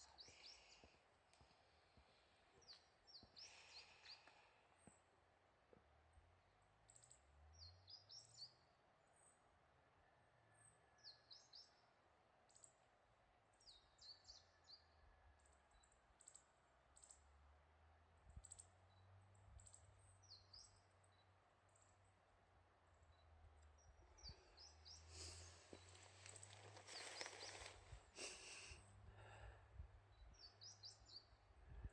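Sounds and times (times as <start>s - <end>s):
small birds chirping: 0.0s - 5.1s, 6.8s - 8.6s, 18.4s - 22.2s, 22.9s - 31.9s
low wind rumble: 31.4s - 31.9s.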